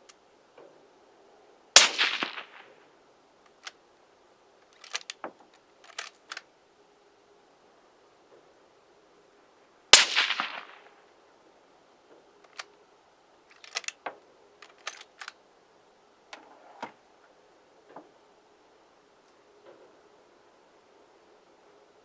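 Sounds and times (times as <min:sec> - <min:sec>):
rifle shot crack: 0:01.8 - 0:02.8, 0:10.0 - 0:11.0.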